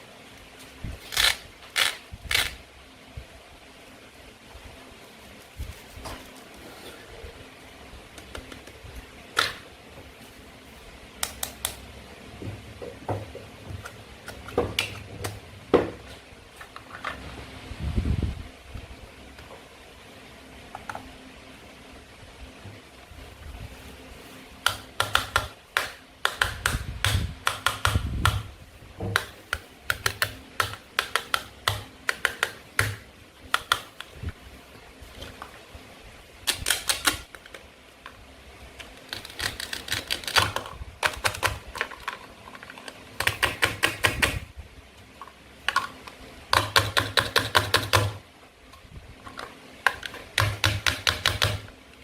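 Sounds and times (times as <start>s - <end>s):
plastic toys clicking and crackling: 36.4s - 37.6s, 38.8s - 44.4s.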